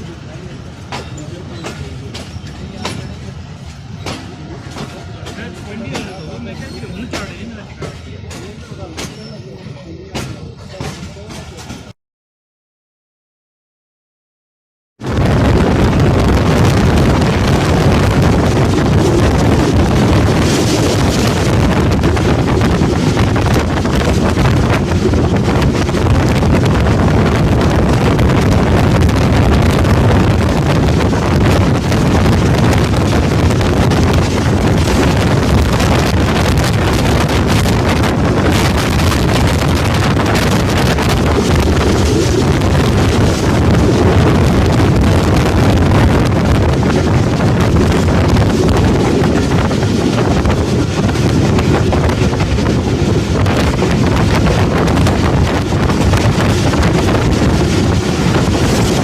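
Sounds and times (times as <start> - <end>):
train running rumble: 0.0 - 12.0, 15.0 - 59.0
wind buffeting microphone: 15.0 - 59.0.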